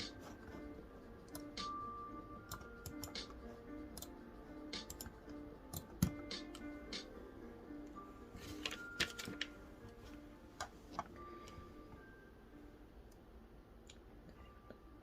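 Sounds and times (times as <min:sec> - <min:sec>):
soft background music: 0:00.0 - 0:15.0
computer keyboard clicking: 0:02.5 - 0:03.3, 0:04.8 - 0:05.1.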